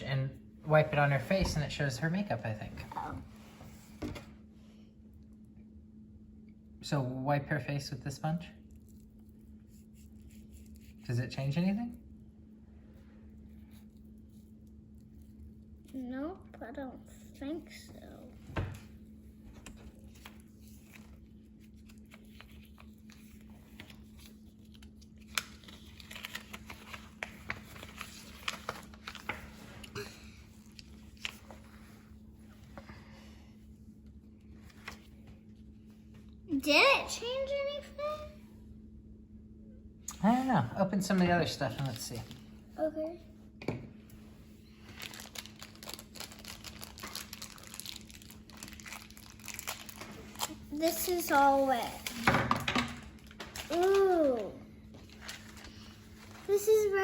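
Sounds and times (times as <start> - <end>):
faint steady hum: 0.0 - 57.0
plastic packaging crinkling: 19.7 - 30.0, 30.6 - 31.8, 44.8 - 51.4, 52.9 - 56.6.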